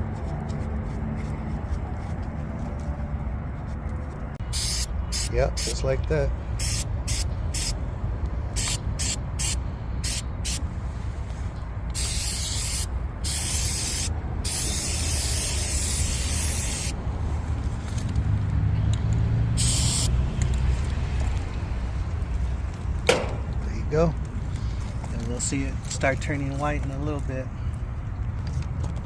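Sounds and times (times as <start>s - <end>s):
aerosol can spraying: 4.5s - 5.7s, 6.6s - 7.7s, 8.6s - 10.6s, 12.0s - 17.0s, 19.6s - 20.1s.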